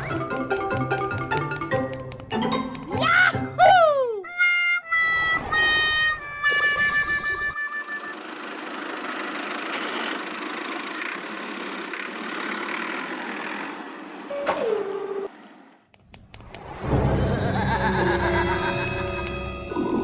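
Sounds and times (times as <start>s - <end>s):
faint clicks: 0.0s - 3.0s, 15.9s - 16.8s.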